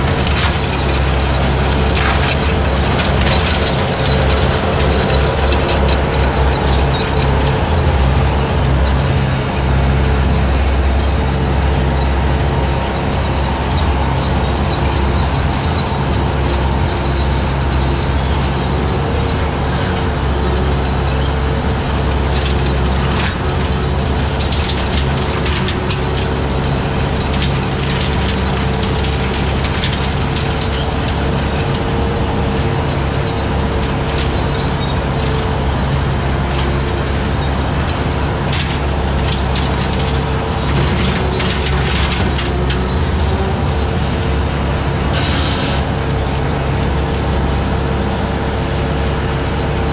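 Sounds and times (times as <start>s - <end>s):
short crackles: 0.0s - 5.2s, 45.3s - 49.9s
hydraulic brush cutter whine: 0.0s - 29.6s, 30.2s - 49.9s
skid steer engine running: 0.0s - 49.9s.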